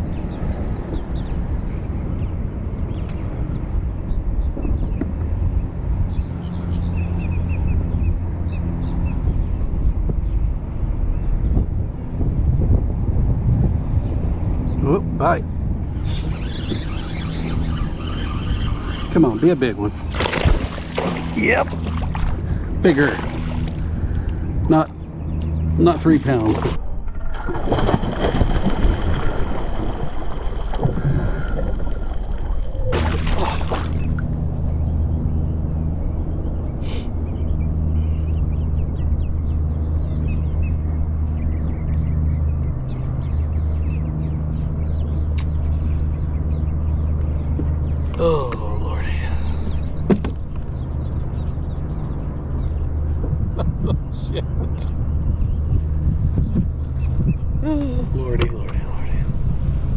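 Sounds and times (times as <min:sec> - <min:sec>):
low drone and rumble: 0:00.0 - 0:59.9
wind buffeting microphone: 0:00.0 - 0:59.9
small birds chirping: 0:14.0 - 0:26.8, 0:32.9 - 0:59.5
water sloshing: 0:19.9 - 0:24.5, 0:25.7 - 0:26.8, 0:32.9 - 0:34.8.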